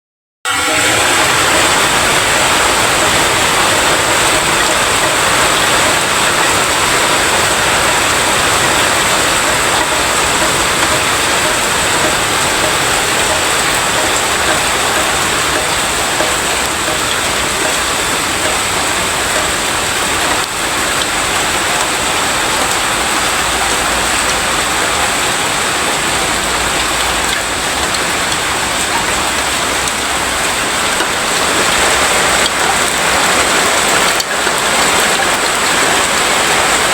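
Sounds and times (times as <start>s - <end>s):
rain falling: 0.5s - 36.9s.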